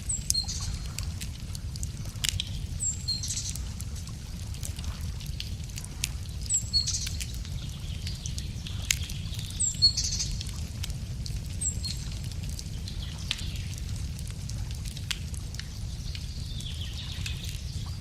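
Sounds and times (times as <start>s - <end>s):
songbird singing: 0.0s - 1.0s, 2.4s - 3.8s, 6.4s - 10.5s, 11.6s - 13.9s, 15.7s - 18.0s
wood fire crackling and popping: 0.0s - 18.0s.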